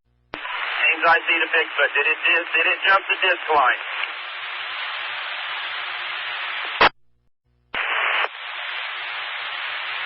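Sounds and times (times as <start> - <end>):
radio squelch burst: 0.4 - 5.0, 7.8 - 10.0
radio scanner static hiss: 0.4 - 7.0, 7.7 - 10.0.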